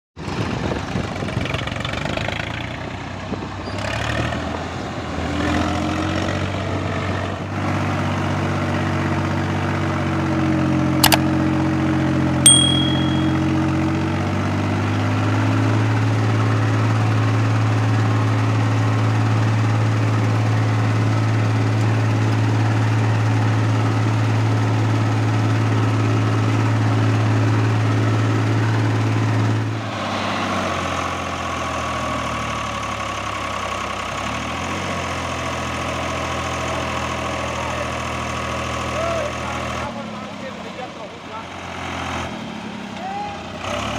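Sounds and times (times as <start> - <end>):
tractor diesel engine running: 6.4 - 43.9
sharp click: 11.0 - 11.2
short metallic ding: 12.5 - 13.8.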